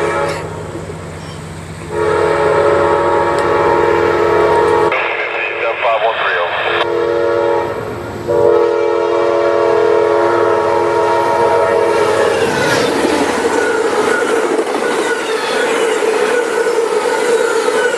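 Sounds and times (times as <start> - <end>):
locomotive air horn blast: 0.0 - 0.7, 1.9 - 5.3, 6.6 - 12.5
train rumbling and clattering by: 0.0 - 17.9.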